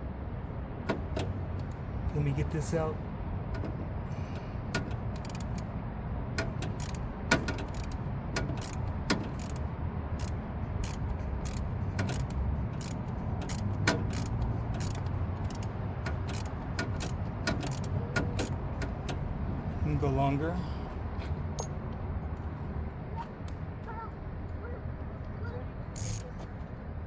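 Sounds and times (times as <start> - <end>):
hand tools clicking on metal: 4.7 - 5.7, 6.4 - 19.2, 26.0 - 26.3.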